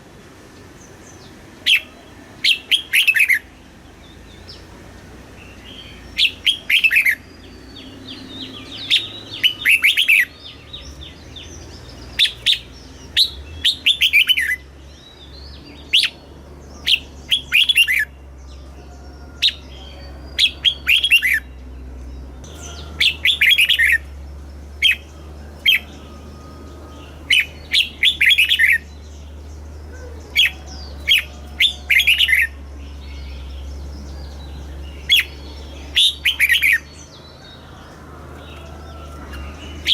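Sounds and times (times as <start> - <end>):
bird singing whistled phrases: 16.8 - 18.2, 19.1 - 21.6, 24.8 - 29.1, 29.9 - 36.9.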